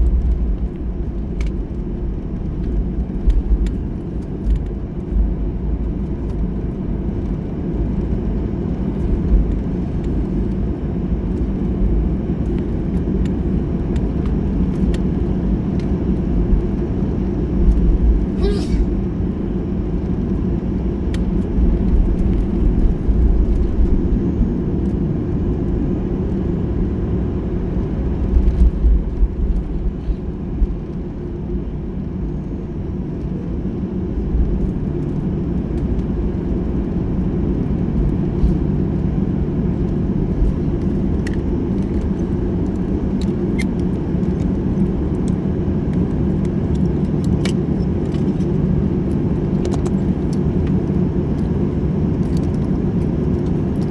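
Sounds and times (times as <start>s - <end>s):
aircraft cabin engine rumble: 0.0s - 53.9s
light cabin clicks and rattles: 39.8s - 53.9s.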